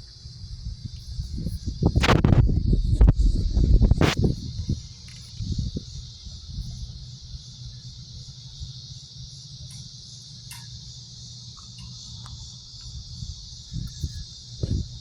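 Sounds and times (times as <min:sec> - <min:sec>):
cicadas buzzing: 0:00.0 - 0:15.0
low rumble: 0:01.8 - 0:04.7.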